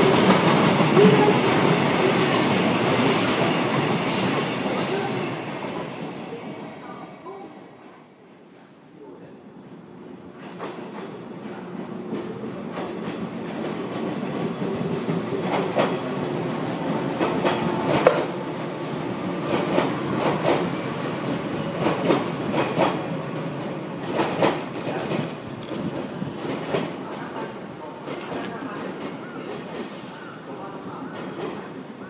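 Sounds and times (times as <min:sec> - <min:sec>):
train rumbling past: 0:09.7 - 0:32.0.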